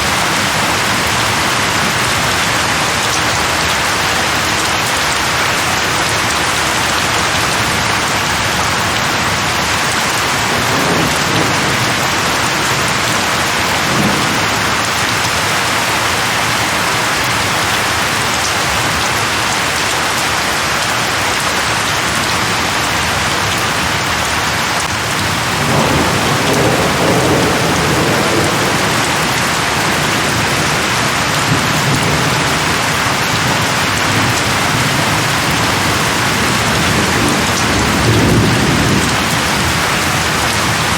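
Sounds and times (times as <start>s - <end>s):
heavy rain pouring: 0.0s - 40.9s
distant thunder rumbling: 10.4s - 18.0s, 25.2s - 40.9s.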